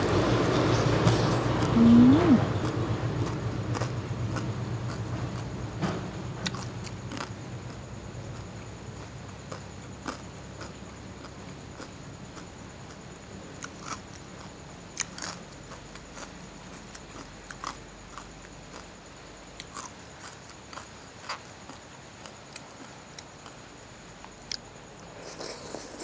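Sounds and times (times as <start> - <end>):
wet chewing clicks and smacks: 2.6 - 5.6, 6.4 - 19.0, 19.6 - 23.6, 24.2 - 24.7.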